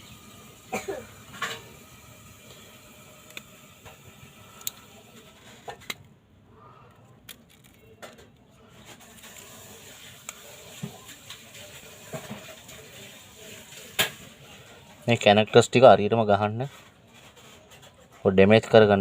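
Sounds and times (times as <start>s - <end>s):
small parts and tools clicking: 3.2s - 4.0s, 4.6s - 6.1s, 6.9s - 11.4s.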